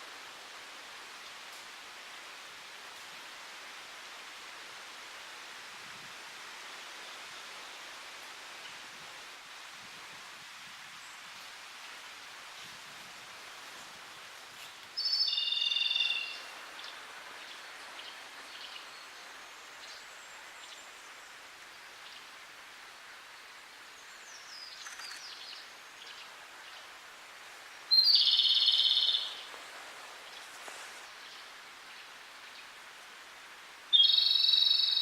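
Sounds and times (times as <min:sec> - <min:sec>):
outdoor hiss: 0:00.0 - 0:35.0
bird singing high phrases: 0:15.0 - 0:16.4, 0:27.9 - 0:29.4, 0:33.9 - 0:35.0
faint bird calls: 0:27.9 - 0:29.5.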